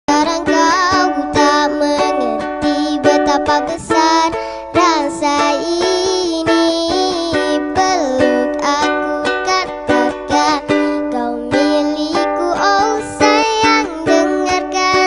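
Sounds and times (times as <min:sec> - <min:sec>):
child singing: 0:00.1 - 0:15.0
ukulele strumming: 0:00.1 - 0:15.0.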